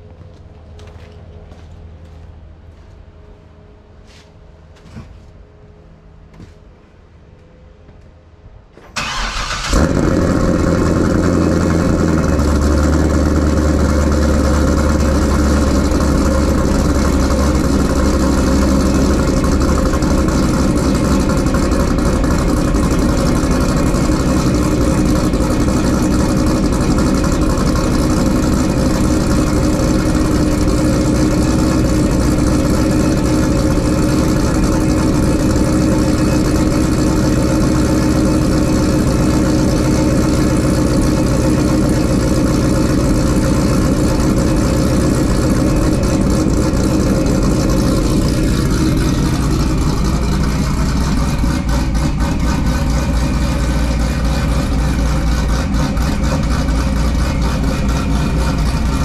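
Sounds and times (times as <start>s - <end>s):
car engine idling: 8.8s - 59.0s
engine cranking: 8.9s - 12.0s
engine revving: 9.0s - 59.0s.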